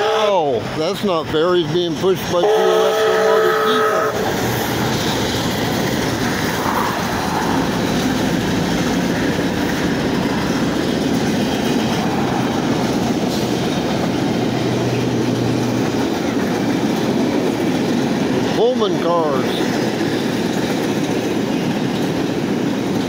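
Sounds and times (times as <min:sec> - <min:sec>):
train wheels clattering over rails: 0:00.0 - 0:23.0
locomotive low hum: 0:03.7 - 0:23.0.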